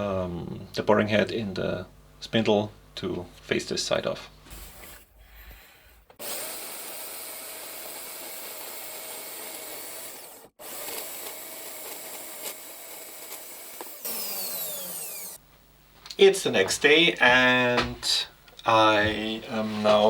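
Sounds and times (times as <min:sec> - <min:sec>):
power tool cutting steel: 0:06.2 - 0:15.4.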